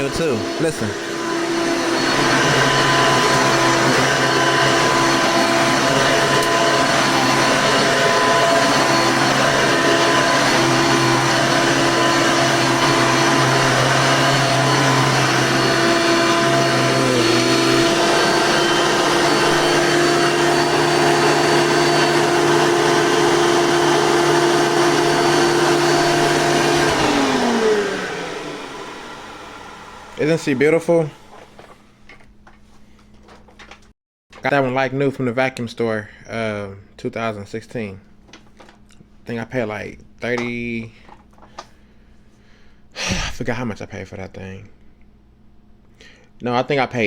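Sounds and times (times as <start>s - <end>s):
vacuum motor winding down: 0.0s - 31.7s
upright vacuum cleaner running: 0.0s - 32.3s.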